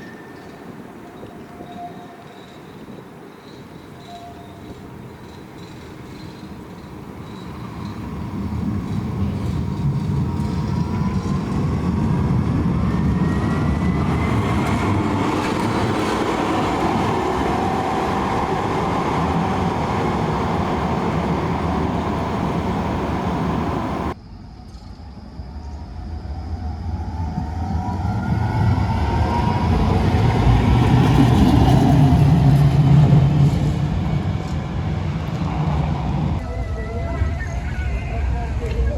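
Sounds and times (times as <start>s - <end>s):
tram rumble: 0.0s - 24.2s, 25.9s - 38.9s
tram motor whine: 6.7s - 24.2s.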